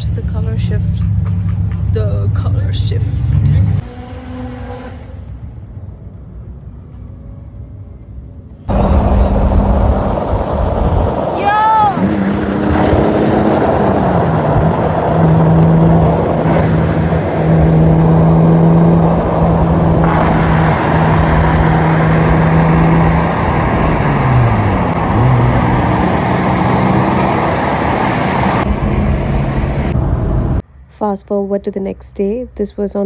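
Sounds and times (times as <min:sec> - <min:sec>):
loud car engine running: 0:08.7 - 0:30.6.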